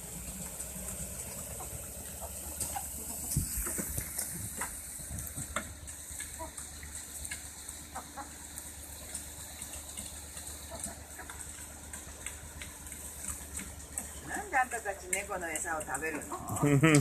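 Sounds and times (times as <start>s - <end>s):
chickens pecking at food: 0.0s - 17.0s
chickens clucking softly: 1.3s - 3.8s, 5.4s - 8.5s, 9.2s - 12.5s, 15.9s - 17.0s.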